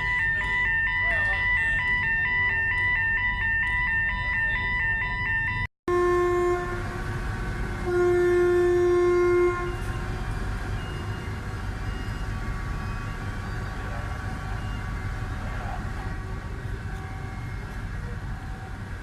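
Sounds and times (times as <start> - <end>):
electronic warning beeper: 0.0 - 5.7
ship's horn blasts: 0.0 - 19.0.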